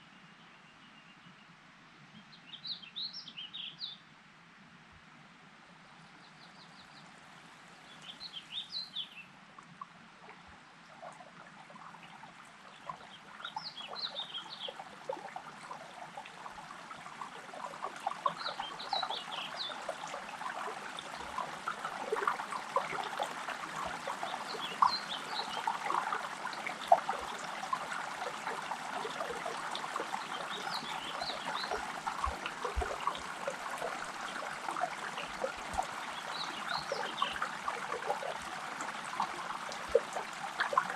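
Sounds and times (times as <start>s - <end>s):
water trickling: 7.6s - 40.9s
songbird chirping: 12.7s - 38.5s.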